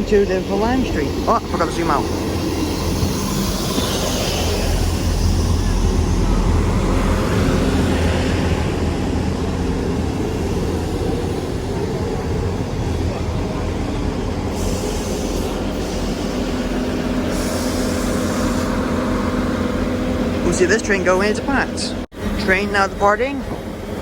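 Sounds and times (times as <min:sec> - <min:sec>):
diesel train engine drone: 0:00.0 - 0:24.0
train air hiss: 0:14.5 - 0:19.4.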